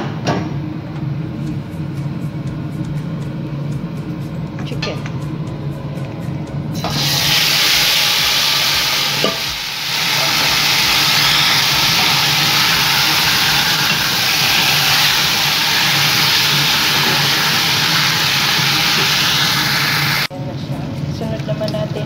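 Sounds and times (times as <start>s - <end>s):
chicken frying in oil: 6.8s - 20.3s.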